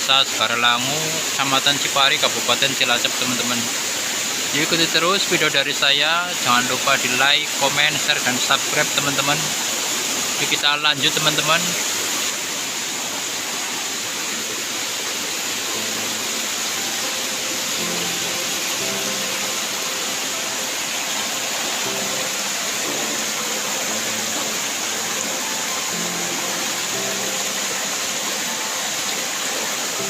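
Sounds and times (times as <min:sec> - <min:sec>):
waterfall rushing: 0:00.0 - 0:30.0
faint music notes: 0:14.3 - 0:30.0.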